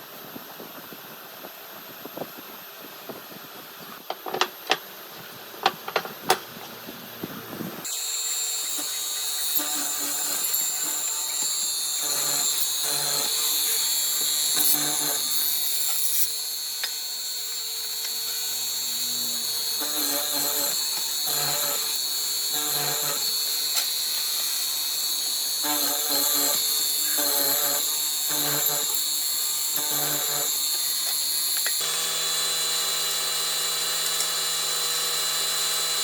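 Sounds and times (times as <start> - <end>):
power tool whining: 7.2 - 36.0.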